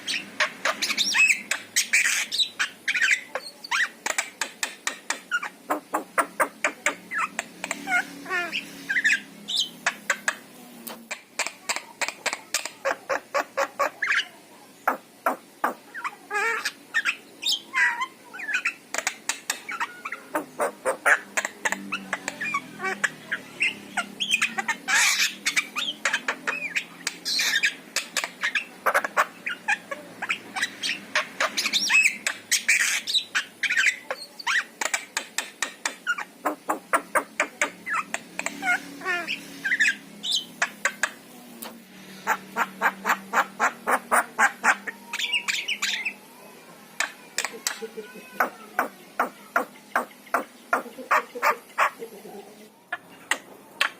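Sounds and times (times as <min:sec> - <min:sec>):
myna bird singing: 0:00.0 - 0:53.9.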